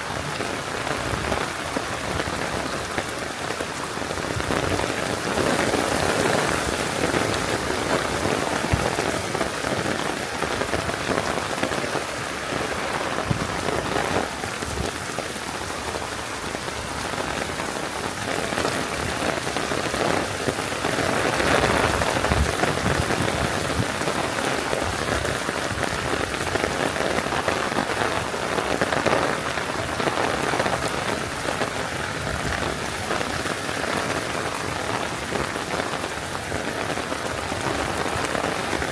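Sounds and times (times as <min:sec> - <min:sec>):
close raindrop hits: 0:00.0 - 0:38.9
heavy rain: 0:00.0 - 0:38.9.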